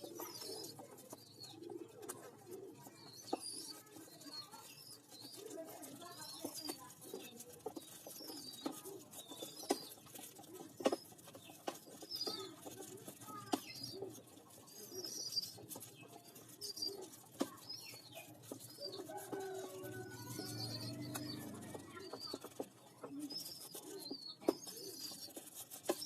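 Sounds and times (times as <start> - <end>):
pigeons cooing: 0.0 - 26.0
pigeons squeaky calls: 0.0 - 26.0.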